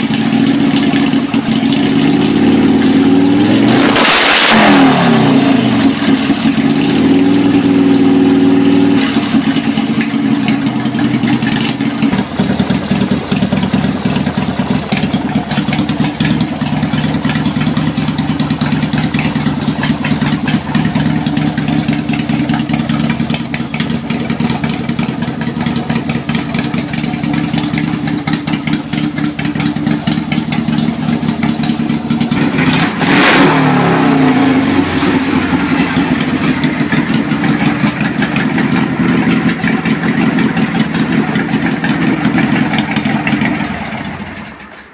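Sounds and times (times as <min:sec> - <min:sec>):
motorcycle engine revving and idling: 0:00.0 - 0:44.9.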